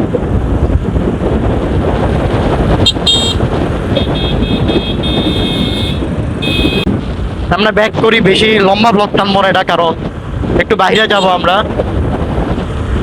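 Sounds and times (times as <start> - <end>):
motorcycle rumble: 0.0 - 13.0
wind buffeting: 0.0 - 13.0
vehicle horn honking: 2.8 - 6.9.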